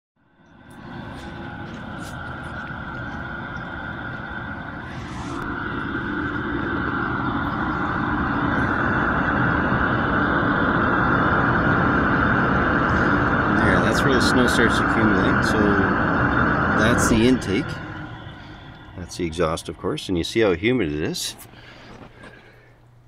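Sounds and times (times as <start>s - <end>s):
exhaust vent blowing: 0.2s - 23.0s.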